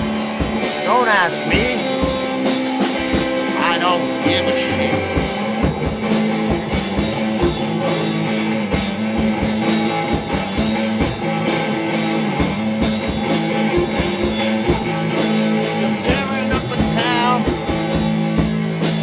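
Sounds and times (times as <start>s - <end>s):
drum kit beat: 0.0s - 19.0s
electric guitar: 0.0s - 19.0s.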